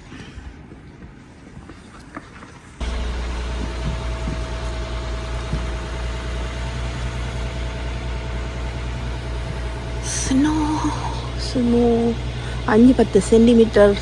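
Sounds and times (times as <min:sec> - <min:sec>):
engine running steadily: 0:02.8 - 0:14.0
faint steady whine: 0:02.8 - 0:14.0.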